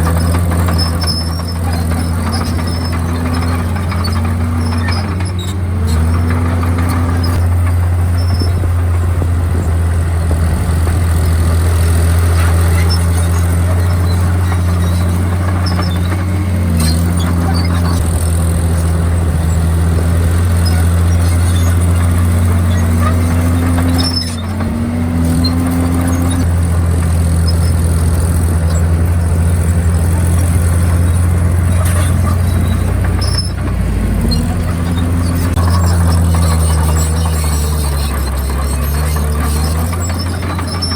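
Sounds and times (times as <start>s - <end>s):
bulldozer diesel drone: 0.0s - 40.9s
high wavering squeal: 30.4s - 40.9s.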